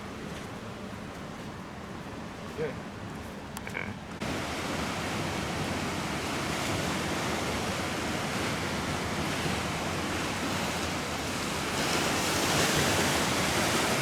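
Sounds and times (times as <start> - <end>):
ocean surf on sandy beach: 4.2 - 14.0.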